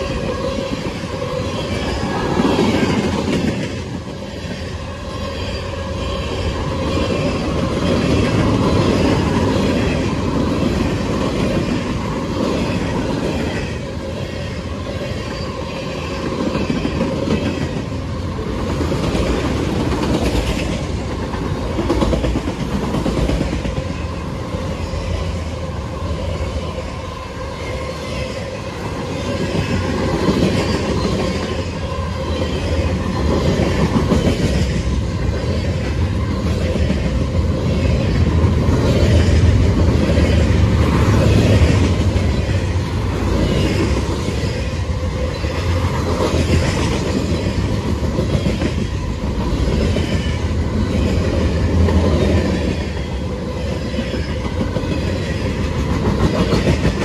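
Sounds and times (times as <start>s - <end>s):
freight train rumbling past: 0.0s - 57.0s
steel wheels clattering on rails: 53.9s - 57.0s.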